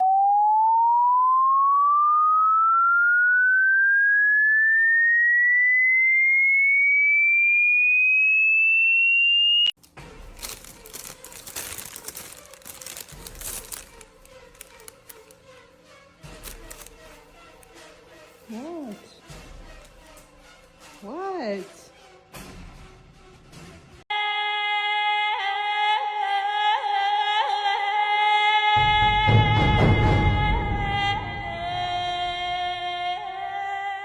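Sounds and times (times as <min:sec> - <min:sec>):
electronic tone sweeping upward: 0:00.0 - 0:09.7
rustling and clicking: 0:09.8 - 0:15.4, 0:16.4 - 0:17.7.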